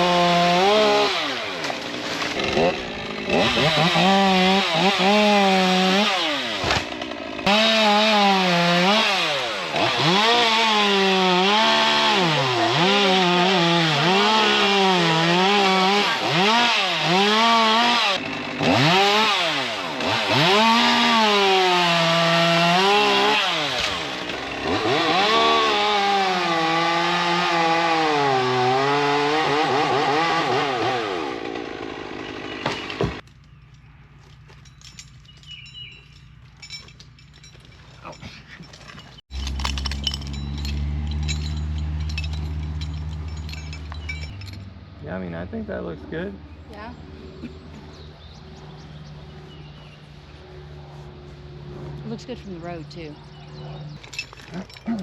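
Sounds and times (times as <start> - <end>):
chainsaw cutting wood: 0.0 - 33.2, 39.2 - 44.5.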